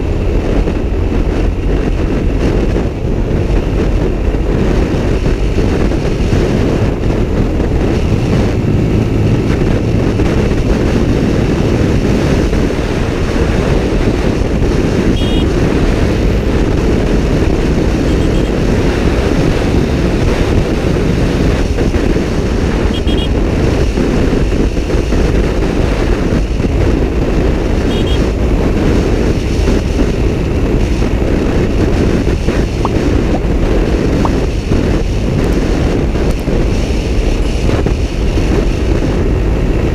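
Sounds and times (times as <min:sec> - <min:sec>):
motorcycle engine: 0:00.0 - 0:39.9
wind rushing over microphone: 0:00.0 - 0:39.9.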